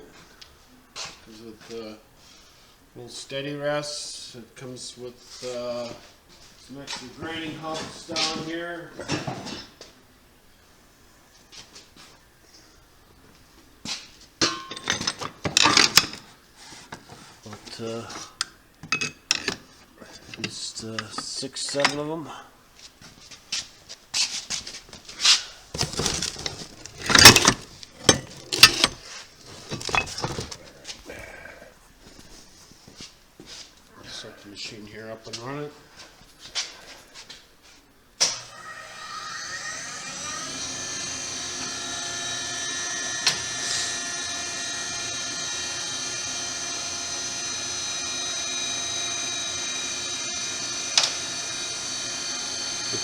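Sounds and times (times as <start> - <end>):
grinding wheels clattering on metal hubs: 14.4 - 16.4, 17.0 - 22.2, 25.6 - 31.0
grinder motor whining: 25.8 - 30.7, 38.5 - 53.0.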